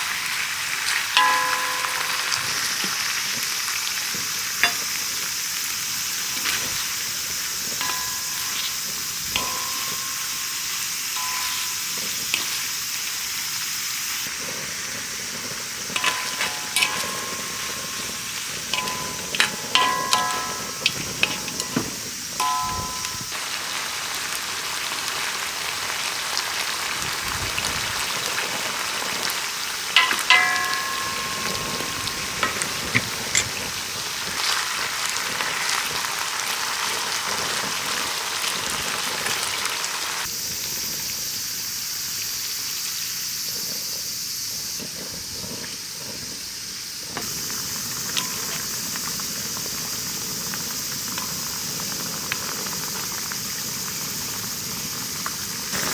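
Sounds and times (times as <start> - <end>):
ringing clink: 1.2 - 3.1, 4.6 - 5.0, 7.7 - 12.7, 15.9 - 23.4, 30.0 - 33.6, 48.2 - 48.6.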